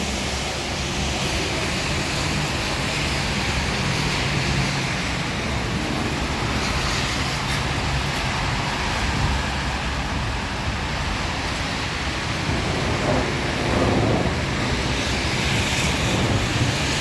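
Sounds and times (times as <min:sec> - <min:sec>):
rain hissing: 0:10.5 - 0:17.0.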